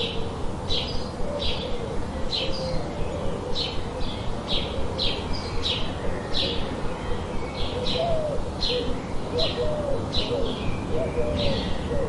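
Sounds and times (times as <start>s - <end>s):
bird chirping: 0.0s - 12.0s
white noise hiss: 0.0s - 12.0s.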